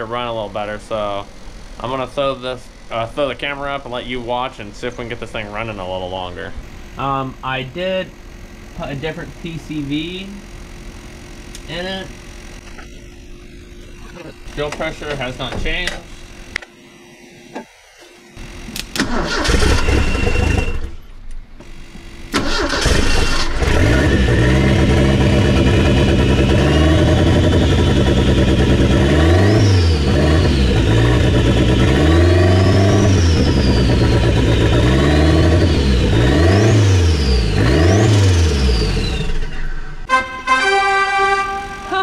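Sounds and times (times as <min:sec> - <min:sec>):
car engine starting and revving: 0:18.9 - 0:20.8, 0:22.3 - 0:40.1.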